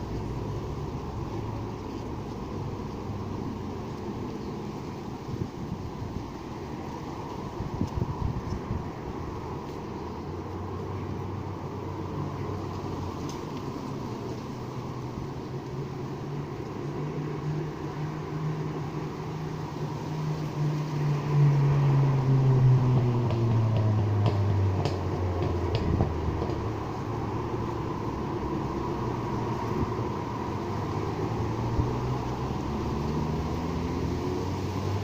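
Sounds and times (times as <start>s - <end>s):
steady background hiss: 0.0s - 35.0s
vehicle passing by: 0.0s - 35.0s.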